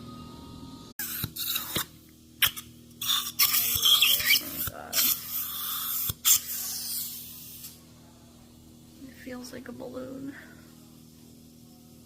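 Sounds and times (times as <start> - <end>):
steady low hum: 0.0 - 12.0
dental equipment hissing: 1.0 - 7.8.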